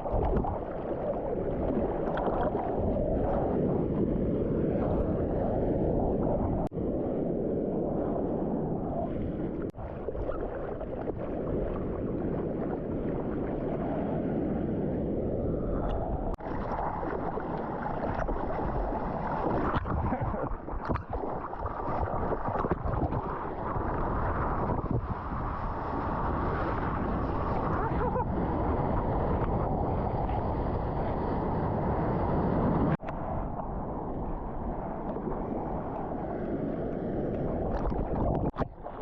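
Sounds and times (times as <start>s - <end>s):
wind buffeting microphone: 0.0s - 39.0s
surf water rushing: 16.4s - 30.1s.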